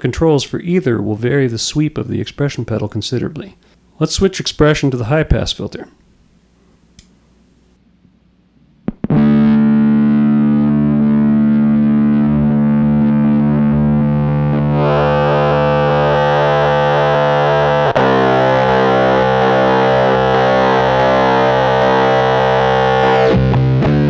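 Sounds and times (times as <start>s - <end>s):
fuzzed electric guitar chords: 8.9s - 24.0s.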